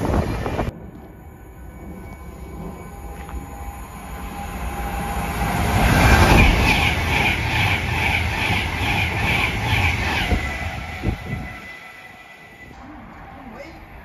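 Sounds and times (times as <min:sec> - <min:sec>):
express train passing at speed: 0:00.0 - 0:14.0.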